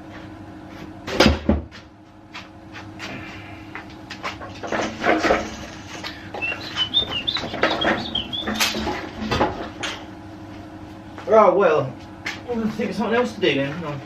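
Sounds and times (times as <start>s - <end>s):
high squeaky chirps: 6.1s - 9.0s.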